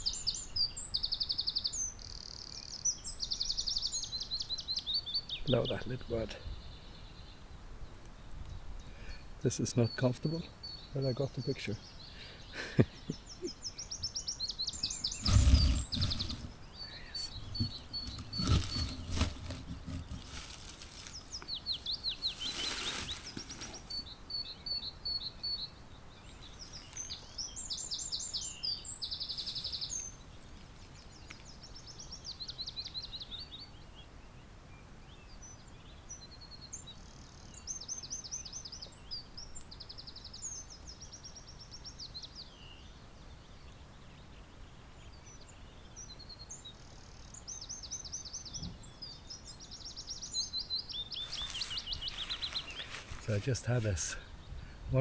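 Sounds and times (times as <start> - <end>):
wren singing high trills: 9.5 - 33.8, 45.2 - 55.0
rustles near microphone: 15.0 - 24.1, 51.1 - 54.2
thumps near microphone: 15.2 - 16.6, 17.2 - 20.6.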